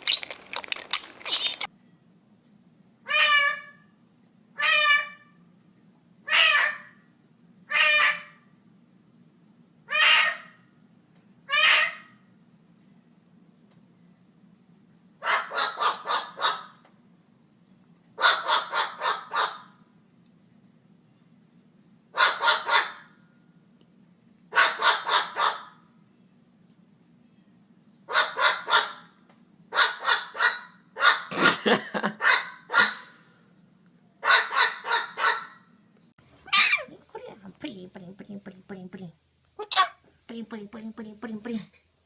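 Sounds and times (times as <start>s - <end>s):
steady low hum: 35.6s - 42.0s
bird calling in bursts: 36.5s - 36.9s.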